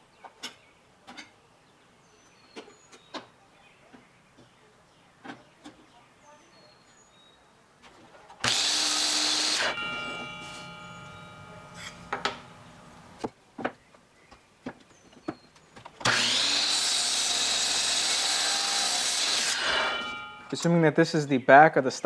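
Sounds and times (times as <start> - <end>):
power saw cutting: 8.4 - 13.2, 16.0 - 21.0
workpiece knocks: 8.4 - 13.3.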